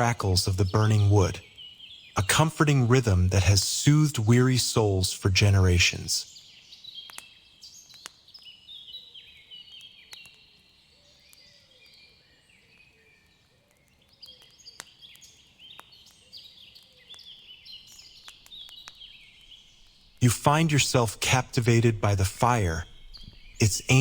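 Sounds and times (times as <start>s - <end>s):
small birds chirping: 0.0s - 24.0s
wood fire crackling: 0.0s - 24.0s.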